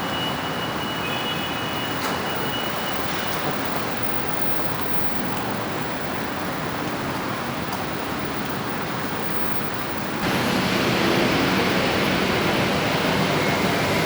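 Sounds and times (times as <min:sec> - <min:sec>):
metro station rushing ambience: 0:10.2 - 0:14.0.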